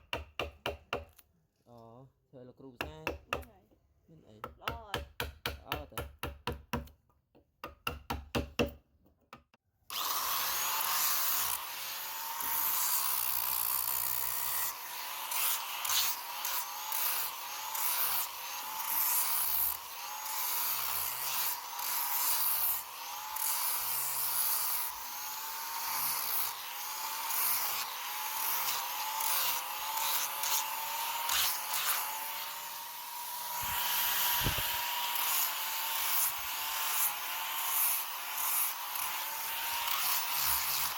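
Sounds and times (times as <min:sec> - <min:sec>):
power tool grinding wood: 0:09.9 - 0:40.9.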